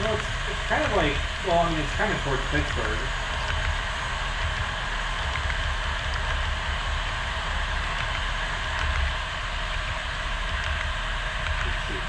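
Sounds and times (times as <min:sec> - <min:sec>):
model train rumble: 0:00.0 - 0:04.5.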